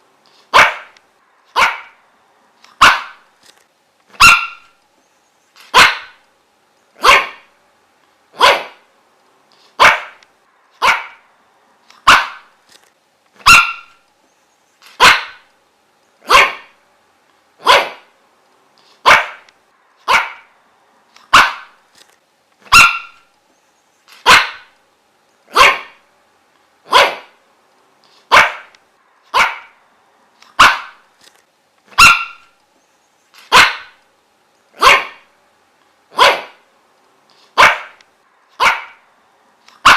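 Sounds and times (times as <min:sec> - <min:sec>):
dog barking: 0:00.5 - 0:02.0, 0:02.8 - 0:03.2, 0:04.2 - 0:04.8, 0:05.7 - 0:06.2, 0:07.0 - 0:07.5, 0:08.4 - 0:08.9, 0:09.8 - 0:10.2, 0:10.8 - 0:11.3, 0:12.0 - 0:12.5, 0:13.4 - 0:14.0, 0:15.0 - 0:15.5, 0:16.2 - 0:16.8, 0:17.6 - 0:18.1, 0:19.0 - 0:20.5, 0:21.3 - 0:21.8, 0:22.7 - 0:23.3, 0:24.2 - 0:24.7, 0:25.5 - 0:26.0, 0:26.9 - 0:27.4, 0:28.3 - 0:28.7, 0:29.3 - 0:29.8, 0:30.6 - 0:31.0, 0:32.0 - 0:32.5, 0:33.5 - 0:34.0, 0:34.8 - 0:35.3, 0:36.1 - 0:36.6, 0:37.6 - 0:38.0, 0:38.6 - 0:39.0.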